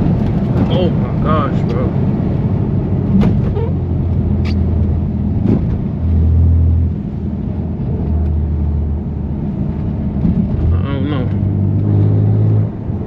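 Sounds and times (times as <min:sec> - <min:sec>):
car engine droning: 0:00.0 - 0:13.0.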